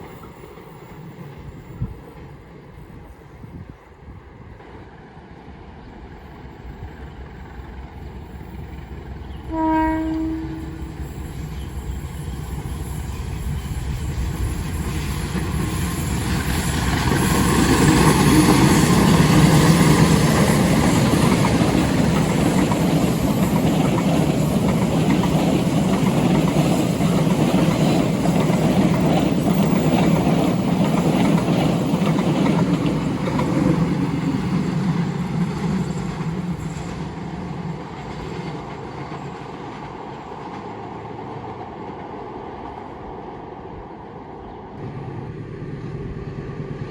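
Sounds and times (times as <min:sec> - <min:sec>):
train rolling past: 0:00.0 - 0:46.9.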